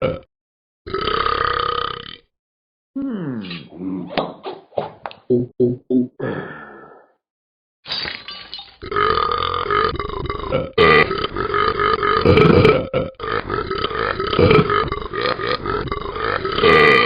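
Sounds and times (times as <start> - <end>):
dog burping: 8.8 - 17.0.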